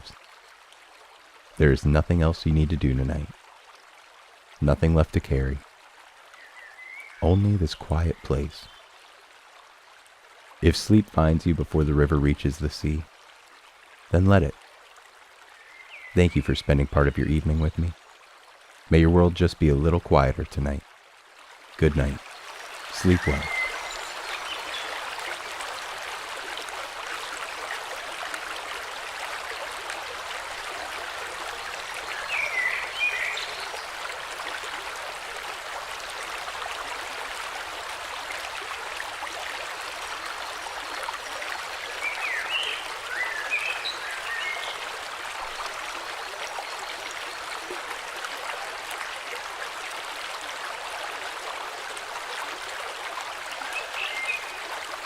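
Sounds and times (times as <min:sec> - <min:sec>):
birds chirping: 0:06.4 - 0:08.9, 0:15.5 - 0:18.0, 0:21.8 - 0:25.1, 0:31.9 - 0:34.0, 0:42.0 - 0:44.9, 0:53.7 - 0:54.6
river water rushing: 0:21.2 - 0:55.0.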